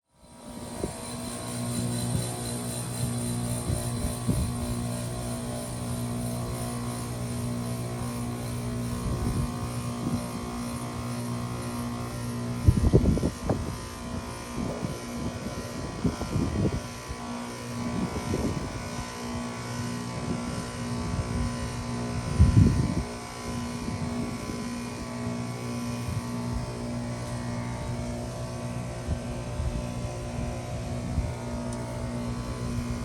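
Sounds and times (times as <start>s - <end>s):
heat pump humming: 0.1s - 33.0s.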